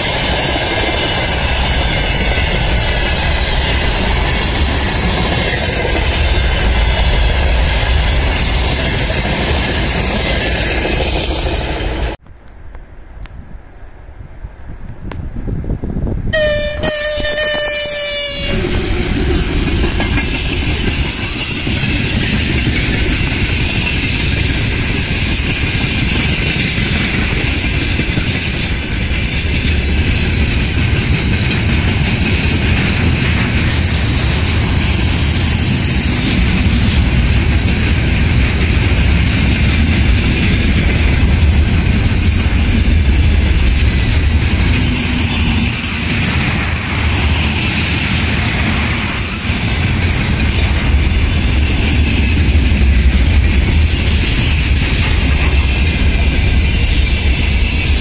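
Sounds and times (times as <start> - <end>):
train wheels rumbling on rails: 0.0 - 12.2, 14.8 - 58.0
locomotive horn: 16.3 - 18.8.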